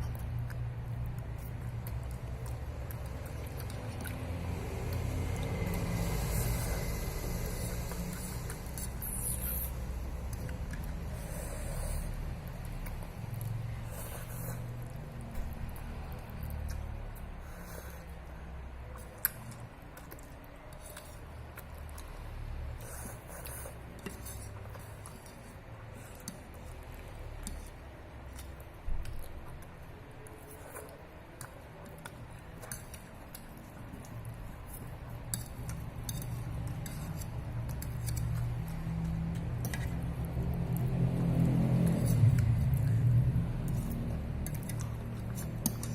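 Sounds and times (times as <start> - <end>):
chewing and slurping noodles: 0.0 - 45.9
low background rumble: 0.0 - 45.9.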